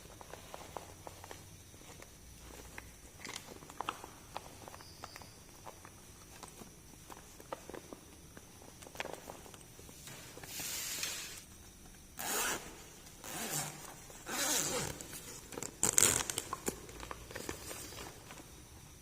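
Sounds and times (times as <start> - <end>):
crackling clicks of packaging: 0.1 - 11.1, 14.8 - 18.6
packaging ripping: 14.3 - 18.0.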